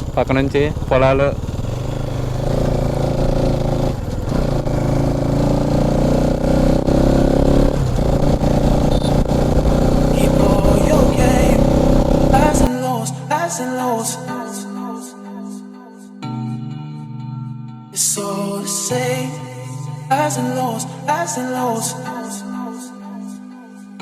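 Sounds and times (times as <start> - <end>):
motorcycle engine running: 0.0 - 12.7.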